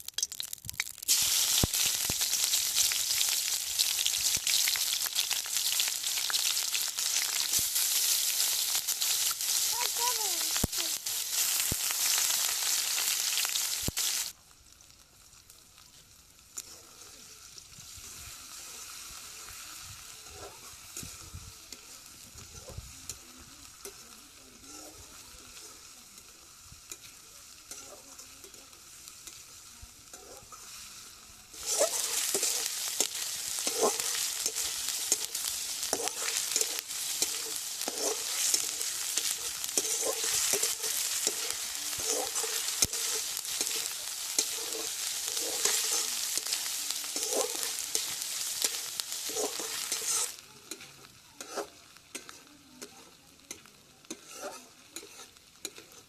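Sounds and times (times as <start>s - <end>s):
curry sizzling in a pan: 0.0s - 56.0s
utensil scraping a pan: 31.6s - 56.0s.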